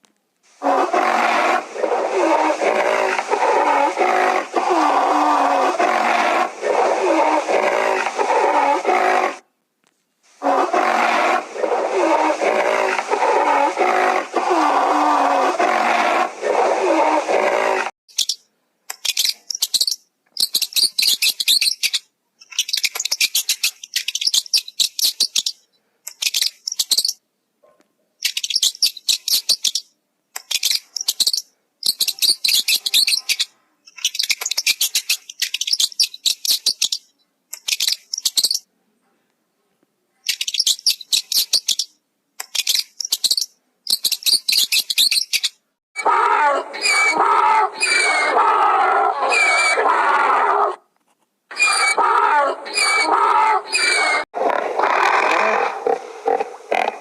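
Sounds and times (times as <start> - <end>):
bird chirping rapidly: 18.1 - 27.2, 28.2 - 38.6, 40.2 - 45.6.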